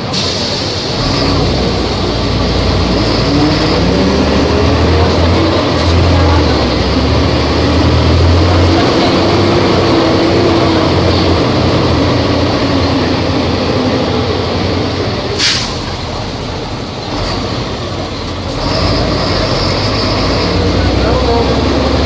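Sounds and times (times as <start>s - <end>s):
bus engine running: 0.0s - 22.0s
sharp hiss of air: 15.4s - 15.9s.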